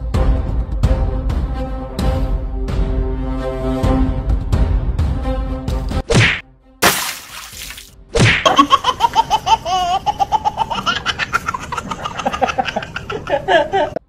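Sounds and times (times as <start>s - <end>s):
high-pitched rapid cackle: 8.4s - 14.0s.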